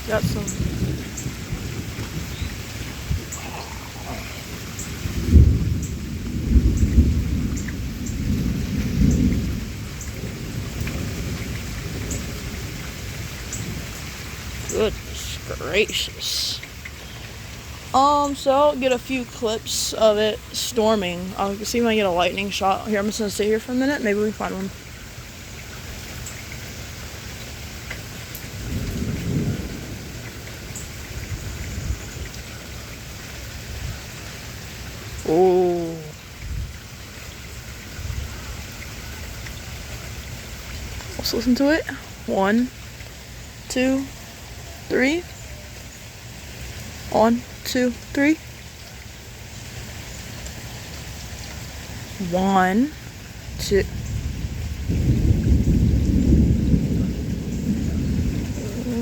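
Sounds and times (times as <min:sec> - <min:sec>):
thunder rumbling: 0:00.0 - 0:24.7, 0:28.4 - 0:34.1, 0:51.2 - 0:59.0
raindrops ticking on a surface: 0:00.0 - 0:59.0
steady rain: 0:00.0 - 0:59.0.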